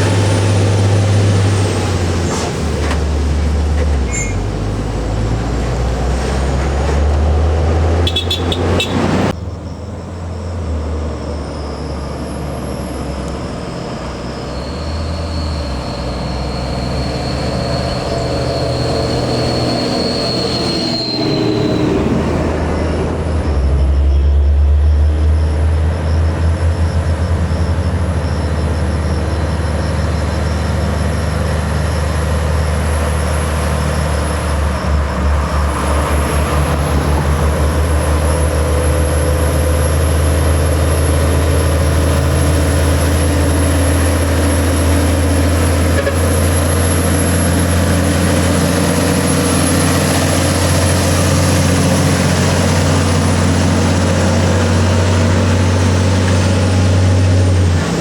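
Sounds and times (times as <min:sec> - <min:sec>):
diesel truck engine labouring: 0:00.0 - 0:58.0.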